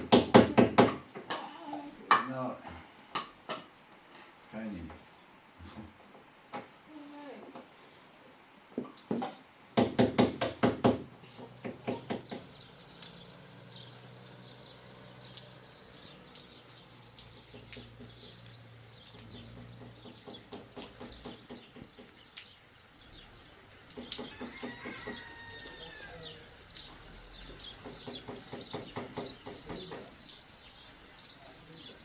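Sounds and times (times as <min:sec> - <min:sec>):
loud knocks: 0:09.1 - 0:12.6, 0:27.8 - 0:30.2
birds chirping faintly: 0:11.0 - 0:32.0.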